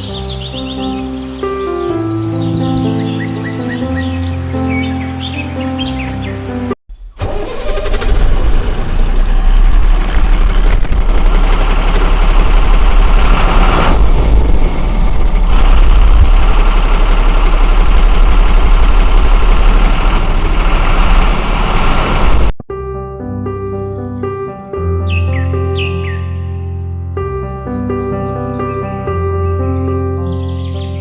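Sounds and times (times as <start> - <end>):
engine deep rumble: 0.0 - 22.6.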